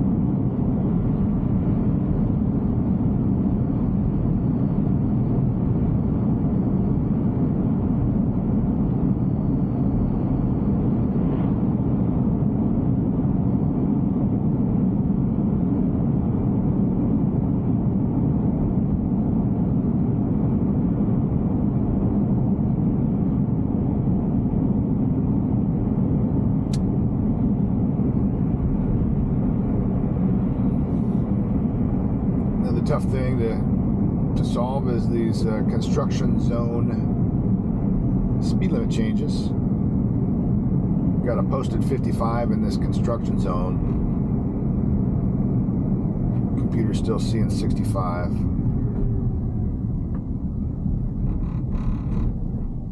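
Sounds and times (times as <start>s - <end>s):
road and tyre rumble in car cabin: 0.0s - 52.9s.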